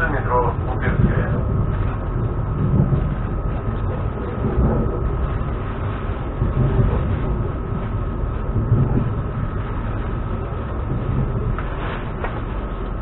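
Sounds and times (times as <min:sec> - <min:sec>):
steady high whine: 0:00.0 - 0:13.0
train carriage and wheels rumbling: 0:00.0 - 0:13.0.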